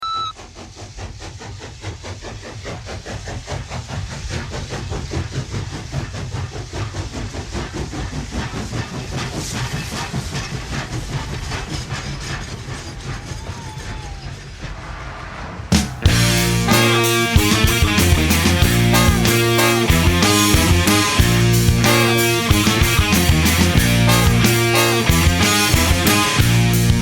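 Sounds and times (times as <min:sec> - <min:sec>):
model steam train running: 0:00.4 - 0:14.6.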